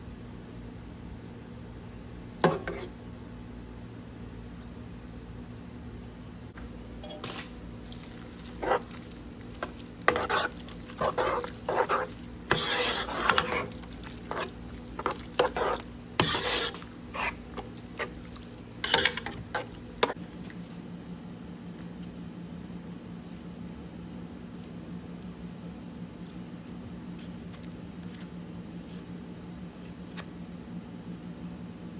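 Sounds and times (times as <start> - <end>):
steady low hum: 0.0 - 31.9
utensils scraping and clinking dish: 7.8 - 20.2.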